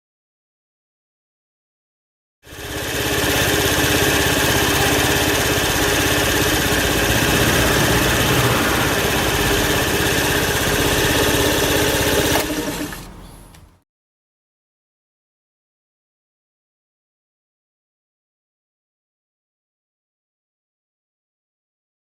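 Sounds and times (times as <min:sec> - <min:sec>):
moped engine idling: 0:02.5 - 0:13.8.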